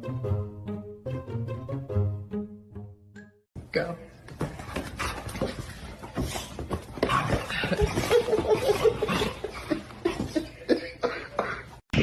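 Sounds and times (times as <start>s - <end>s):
person laughing: 7.5s - 11.8s.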